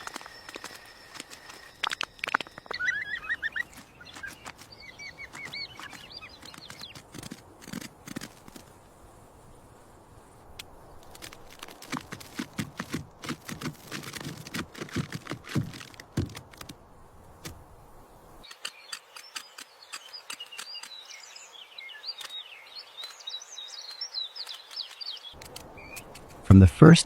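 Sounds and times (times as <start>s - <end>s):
bird chirping rapidly: 2.4s - 7.1s, 18.5s - 26.2s
irregular clicks and knocks: 11.2s - 16.8s.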